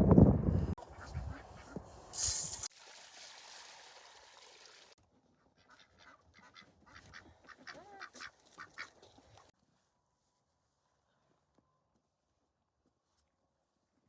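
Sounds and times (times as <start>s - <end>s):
ducks quacking: 0.8s - 1.9s, 5.4s - 9.1s.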